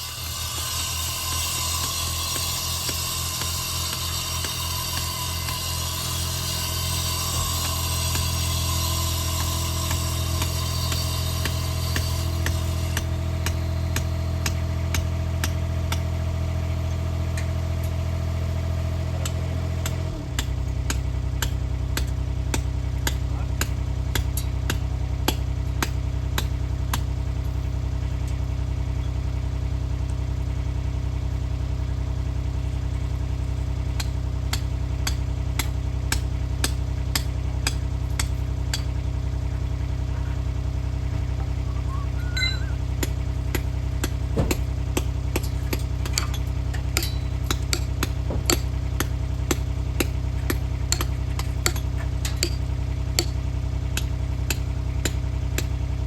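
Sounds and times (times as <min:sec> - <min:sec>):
engine idling: 0:00.0 - 0:56.0
sharp clicks and knocks: 0:42.2 - 0:53.4.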